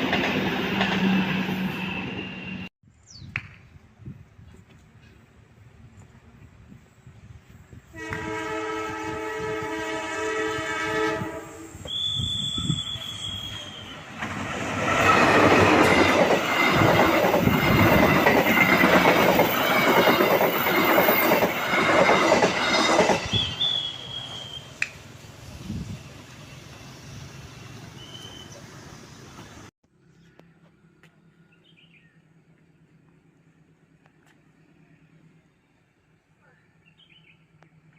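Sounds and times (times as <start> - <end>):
train wheels clickety-clack: 0.0 - 1.5, 14.2 - 23.8
train horn blast: 7.9 - 14.1
high wheel squeal: 11.8 - 14.2, 22.6 - 24.8, 25.8 - 29.2.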